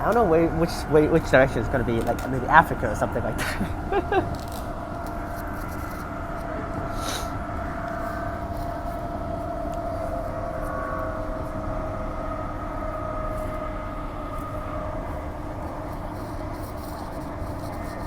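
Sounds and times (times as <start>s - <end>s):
electric train running: 0.0s - 18.0s.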